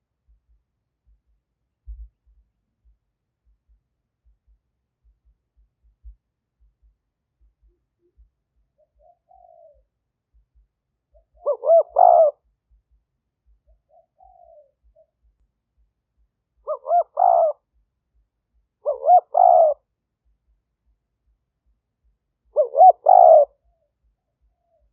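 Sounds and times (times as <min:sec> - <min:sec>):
dove cooing: 0:08.8 - 0:10.0, 0:11.1 - 0:12.5, 0:13.6 - 0:15.3, 0:16.6 - 0:17.7, 0:18.8 - 0:19.9, 0:22.5 - 0:24.9.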